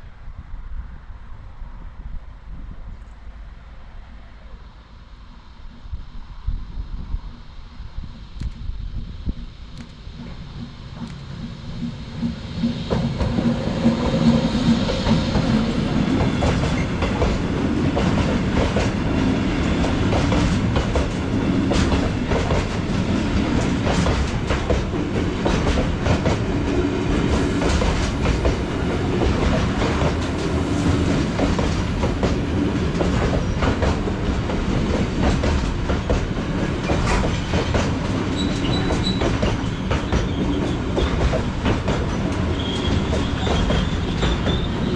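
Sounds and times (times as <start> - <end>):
train wheels clattering over rail joints: 9.8 - 44.9.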